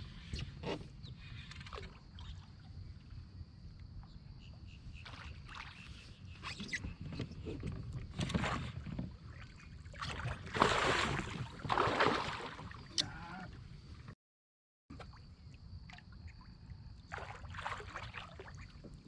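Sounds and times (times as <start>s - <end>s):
water splashing around kayak: 4.8s - 14.2s, 14.9s - 19.0s
wind rumble on microphone: 5.9s - 11.9s.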